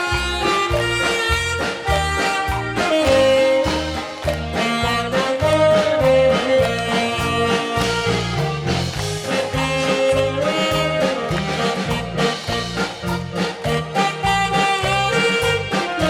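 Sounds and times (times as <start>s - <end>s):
drum beat: 0.0s - 16.0s
saxophone melody: 0.0s - 16.0s
walking bass notes: 0.0s - 16.0s.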